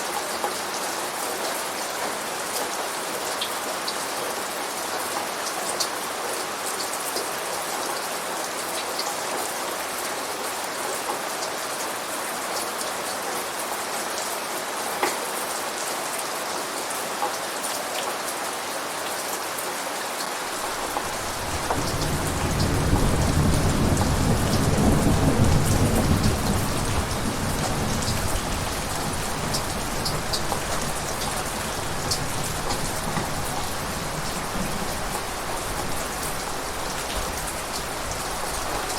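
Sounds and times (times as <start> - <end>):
rain falling: 0.0 - 38.9
low rumble of thunder: 20.6 - 38.9.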